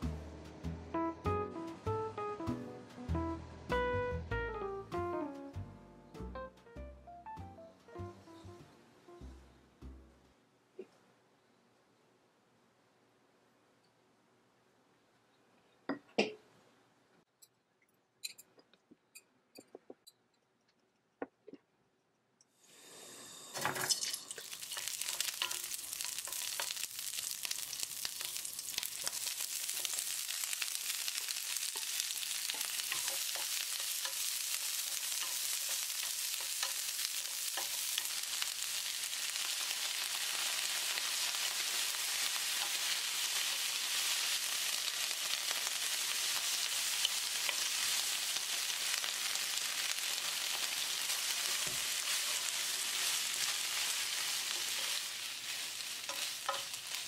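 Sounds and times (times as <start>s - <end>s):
frying sizzle: 0.0s - 5.2s, 22.7s - 57.0s
sausages dropping into pan: 23.6s - 34.2s
wooden spoon stirring in pan: 23.9s - 57.0s.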